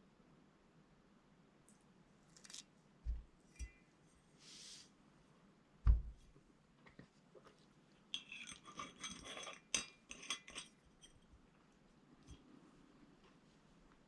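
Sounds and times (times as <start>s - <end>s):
soft thump: 5.8s - 6.2s
tableware clinking: 8.1s - 11.2s.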